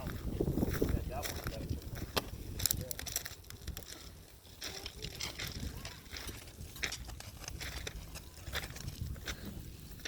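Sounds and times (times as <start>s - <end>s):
footsteps crunching on rough ground: 0.0s - 10.0s.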